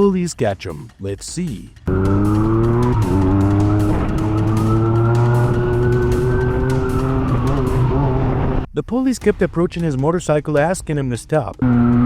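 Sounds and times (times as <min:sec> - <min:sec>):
motorcycle engine revving: 0:01.9 - 0:08.7, 0:11.6 - 0:12.0
police siren wailing: 0:01.9 - 0:08.7, 0:11.6 - 0:12.0.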